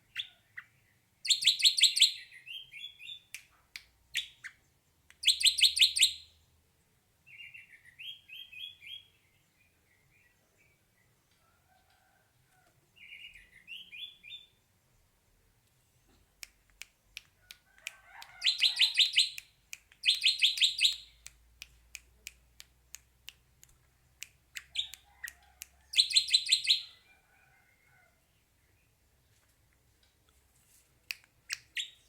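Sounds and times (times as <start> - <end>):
sharp bird clicks: 3.0 - 6.2, 16.1 - 26.9, 31.1 - 32.0.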